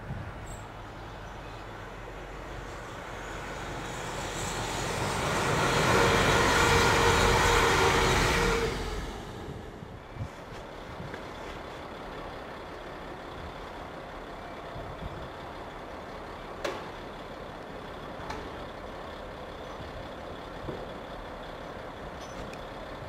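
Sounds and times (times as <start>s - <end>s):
diesel train passing: 0.0s - 23.0s.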